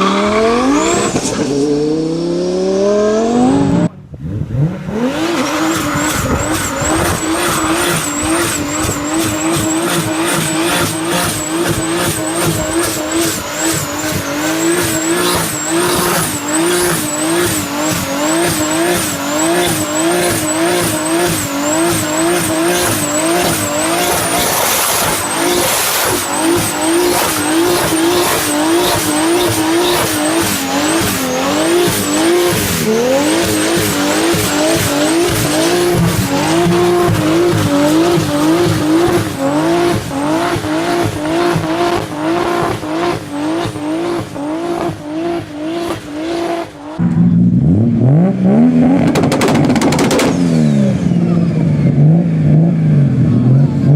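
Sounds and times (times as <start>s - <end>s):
car engine at high revs: 0.0s - 53.9s
tyre squeal: 5.2s - 46.9s
exhaust pops crackling: 5.6s - 45.0s, 49.0s - 50.5s.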